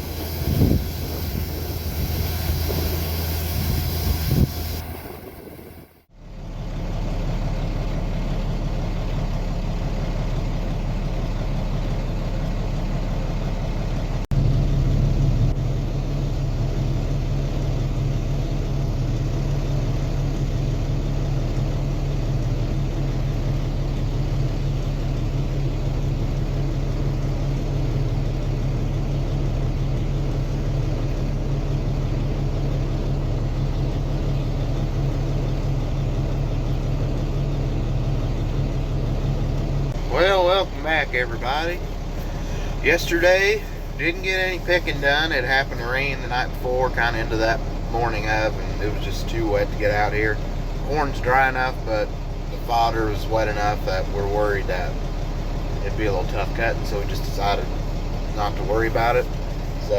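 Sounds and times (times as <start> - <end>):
wind-like hiss: 0.0 - 5.9
diesel engine humming: 0.0 - 59.9.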